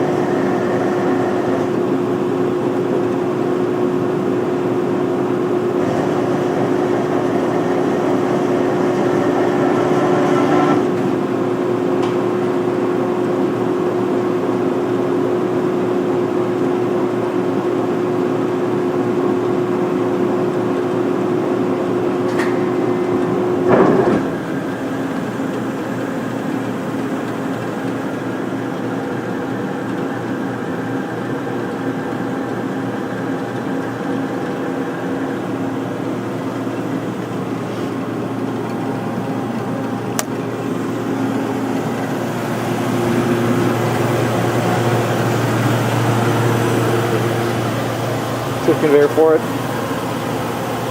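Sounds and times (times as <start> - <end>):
lathe whining: 0.0 - 50.9
low machine hum: 0.0 - 50.9
machine clunk: 5.8 - 11.3, 22.2 - 24.8.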